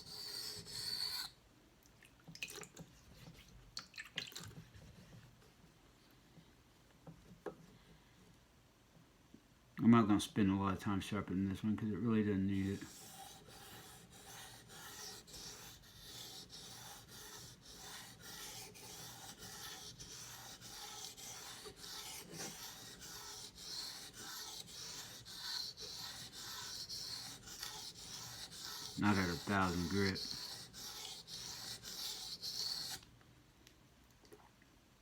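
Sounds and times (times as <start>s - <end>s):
knife scraping on whetstone: 0.0s - 1.4s, 12.6s - 33.0s.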